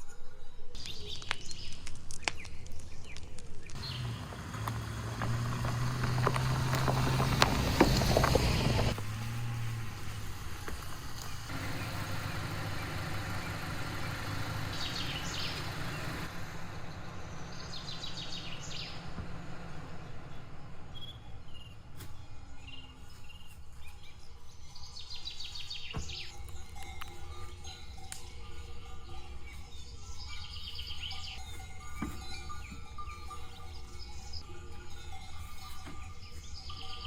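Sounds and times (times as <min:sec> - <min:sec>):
bird trills: 0:11.2 - 0:37.0.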